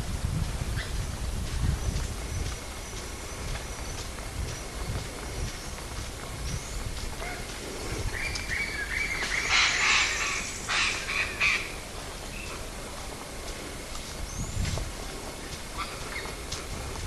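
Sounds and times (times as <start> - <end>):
bird harsh screeching call: 8.6 - 11.7.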